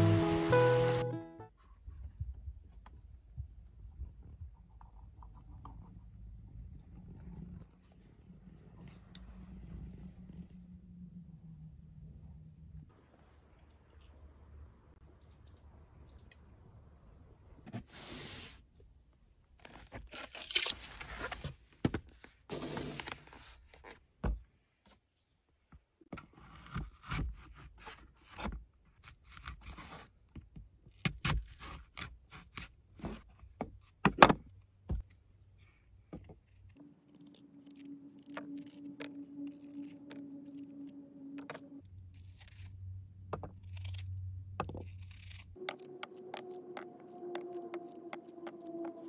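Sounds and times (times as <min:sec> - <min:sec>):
knife cutting an apple: 0:36.2 - 0:49.0.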